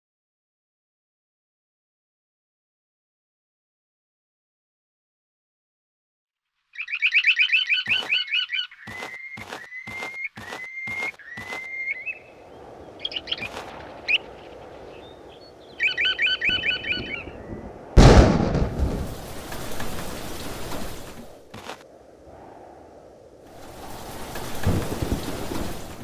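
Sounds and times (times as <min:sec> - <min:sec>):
birds chirping: 0:06.8 - 0:17.9
steady rain: 0:08.9 - 0:26.0
thunderclap and rumbling: 0:12.3 - 0:26.0.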